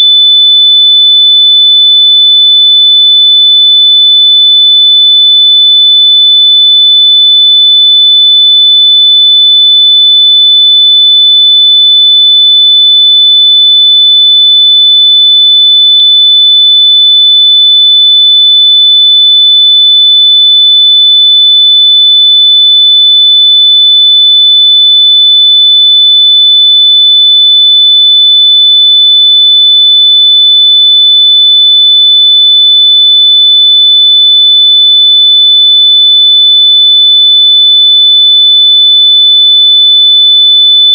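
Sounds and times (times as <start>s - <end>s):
high pure sine tone: 0.0s - 1.6s.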